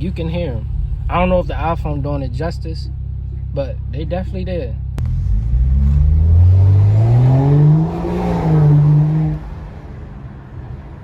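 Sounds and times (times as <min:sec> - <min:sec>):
car exhaust accelerating hard: 0:04.9 - 0:10.4.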